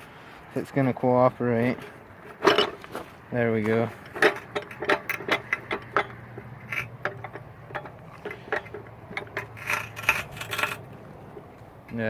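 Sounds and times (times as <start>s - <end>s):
bench vise clicking and clanking: 1.8s - 3.1s, 3.7s - 10.9s.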